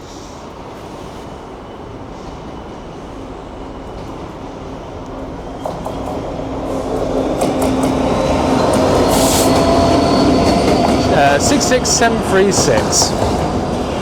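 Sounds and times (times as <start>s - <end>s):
diesel locomotive engine: 0.0s - 14.0s.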